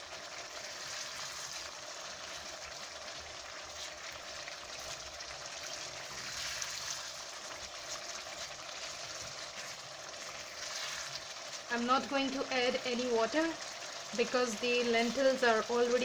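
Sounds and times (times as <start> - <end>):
curry sizzling in a saucepan: 0.0 - 16.0
spatula stirring: 3.6 - 11.6.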